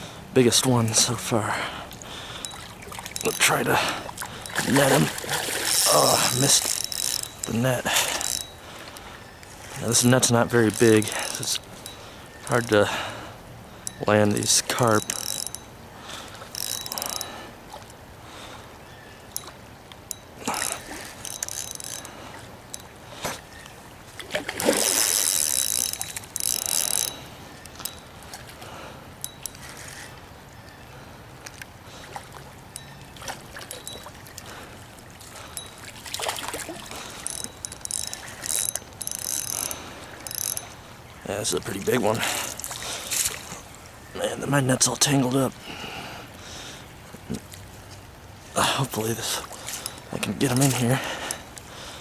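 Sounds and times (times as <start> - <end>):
fishing reel ticking: 0.5 - 12.9, 13.7 - 18.0, 19.3 - 23.0, 24.6 - 28.4, 29.2 - 30.1, 32.7 - 33.0, 33.6 - 34.7, 35.3 - 43.6, 48.9 - 51.6.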